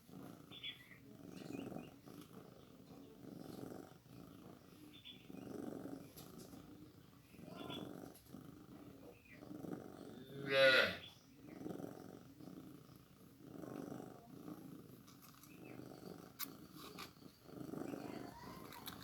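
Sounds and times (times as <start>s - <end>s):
cat purring: 0.0s - 19.0s
cat meowing: 18.0s - 19.0s
faint clicks: 18.2s - 19.0s.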